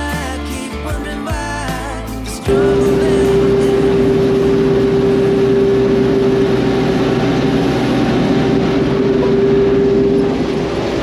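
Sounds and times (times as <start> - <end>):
machinery engine rumble: 0.0 - 11.0
constant high whine: 2.2 - 11.0.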